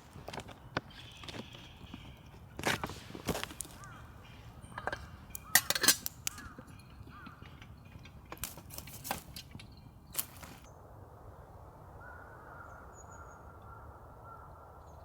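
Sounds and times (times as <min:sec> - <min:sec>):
sharp clicks and knocks: 0:02.7 - 0:10.7.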